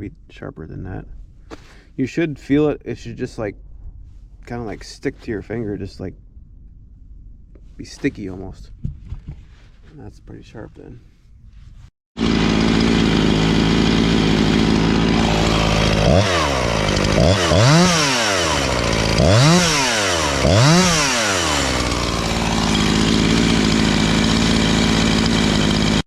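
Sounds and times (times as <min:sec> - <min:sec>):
chainsaw idling and revving: 0:12.2 - 0:26.0.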